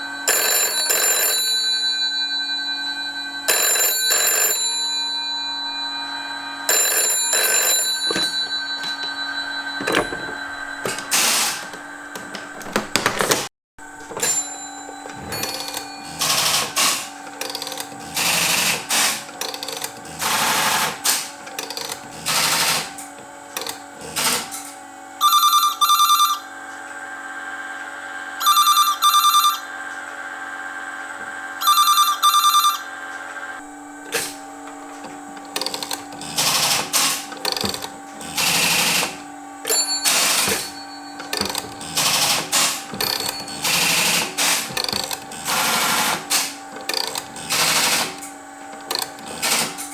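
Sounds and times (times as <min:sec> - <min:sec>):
telephone ringing: 0:00.0 - 0:21.0, 0:25.1 - 0:34.1, 0:35.5 - 0:48.4
telephone exchange switches clicking: 0:35.0 - 0:49.9.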